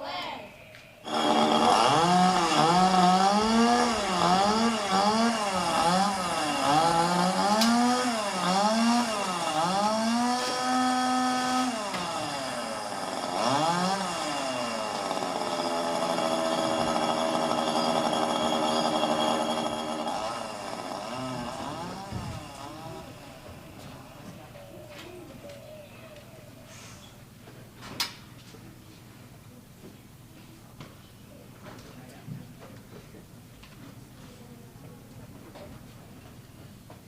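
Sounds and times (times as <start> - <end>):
chainsaw engine revving: 1.0 - 24.4.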